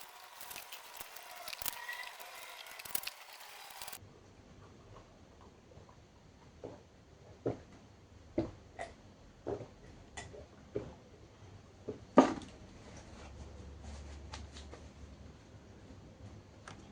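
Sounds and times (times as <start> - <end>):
crunchy bites and chewing: 0.0 - 4.0.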